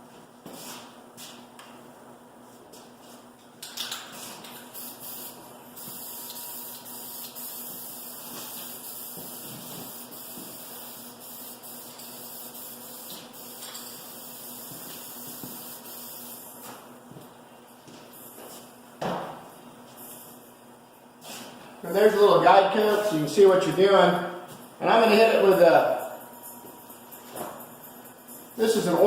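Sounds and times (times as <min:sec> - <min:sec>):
paint spray hiss: 0:04.2 - 0:16.4.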